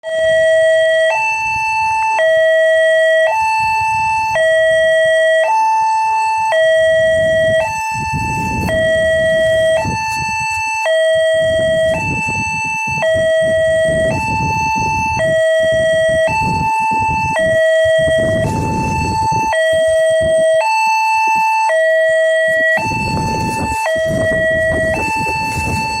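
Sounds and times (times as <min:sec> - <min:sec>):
two-tone level crossing alarm: 0:00.0 - 0:26.0.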